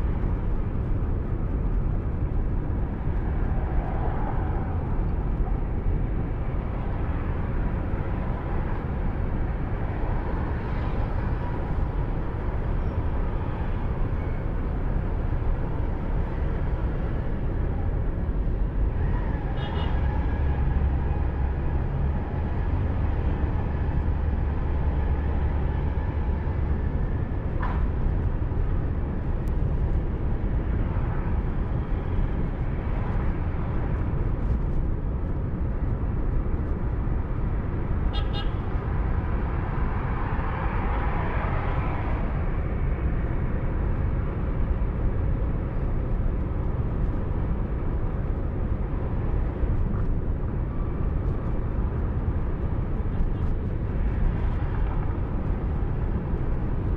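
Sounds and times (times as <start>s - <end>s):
engine and tyre rumble: 0.0s - 56.9s
traffic horns: 19.6s - 20.1s, 38.1s - 38.6s.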